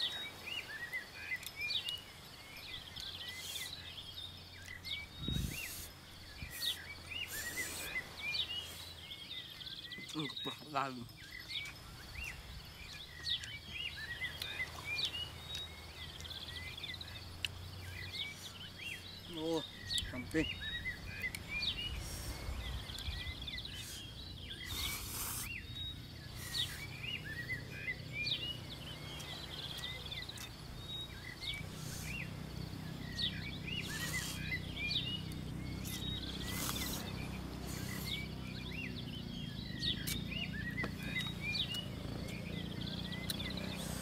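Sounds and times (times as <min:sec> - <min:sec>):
birds chirping: 0:00.0 - 0:44.0
brief hissing noises: 0:24.7 - 0:25.6.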